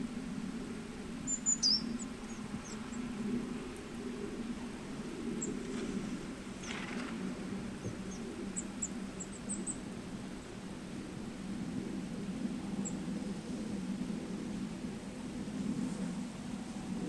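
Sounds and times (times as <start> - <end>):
steady low rumble: 0.0 - 17.0
small birds chirping: 1.2 - 3.2.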